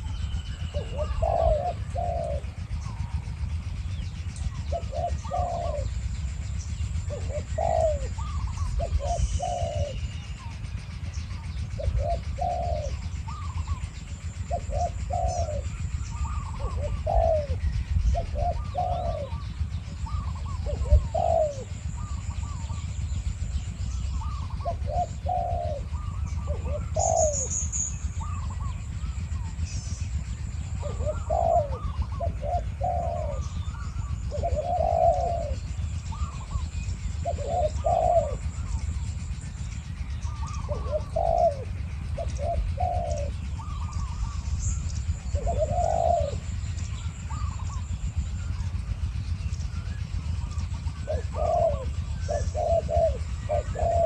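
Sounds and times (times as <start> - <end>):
doves cooing: 0.0 - 54.0.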